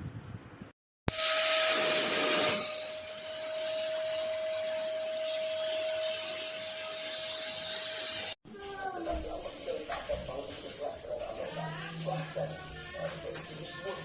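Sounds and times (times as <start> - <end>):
vacuum cleaner motor whine: 1.1 - 8.4.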